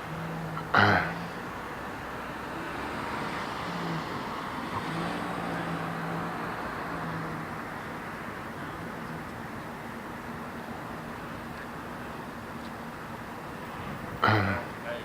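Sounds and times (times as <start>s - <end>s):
car passing: 0.0s - 11.4s.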